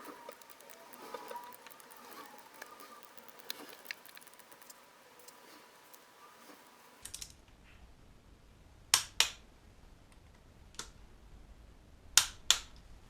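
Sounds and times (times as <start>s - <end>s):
sharp clicks and taps: 0.0s - 6.7s.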